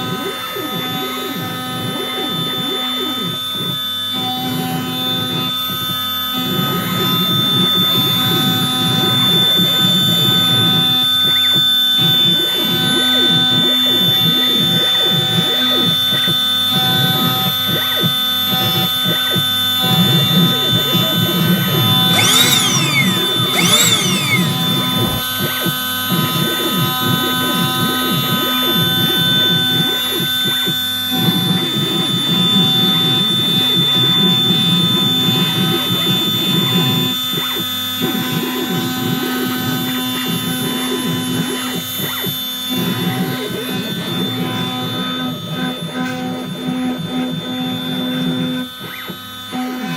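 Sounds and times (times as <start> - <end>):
engraver spindle whine: 21.7 - 25.2
axis motors whirring: 21.9 - 25.2.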